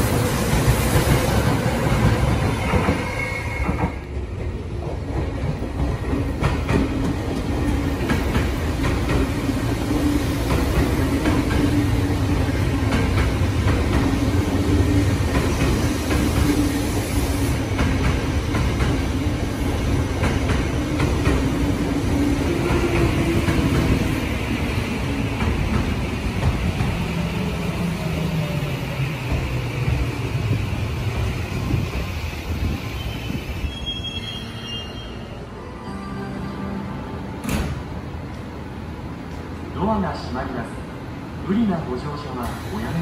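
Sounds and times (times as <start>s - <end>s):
train rolling into station: 0.0s - 43.0s
high wheel squeal: 32.9s - 35.5s.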